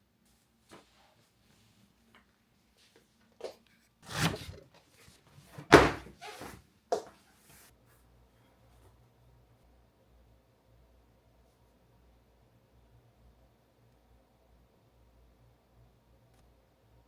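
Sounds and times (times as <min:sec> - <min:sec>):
thunks and knocks: 0:05.6 - 0:06.2.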